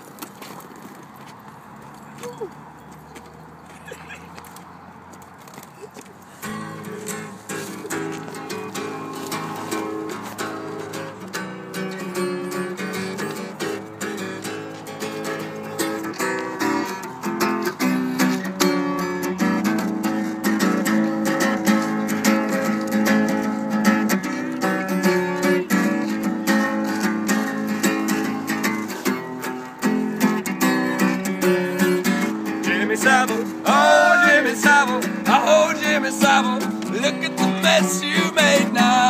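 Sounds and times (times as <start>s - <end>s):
strummed acoustic guitar: 6.3s - 39.0s
person singing: 32.6s - 39.0s.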